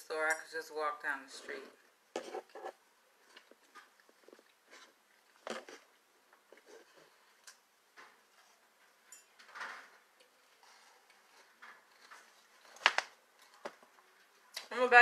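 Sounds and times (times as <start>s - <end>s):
eating cereal: 2.2s - 7.6s.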